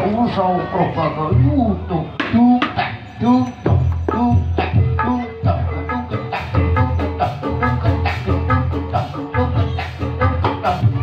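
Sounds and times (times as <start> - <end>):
steady bass line: 1.2 - 11.0
drums: 1.3 - 11.0
tuned percussion pattern: 2.2 - 9.0.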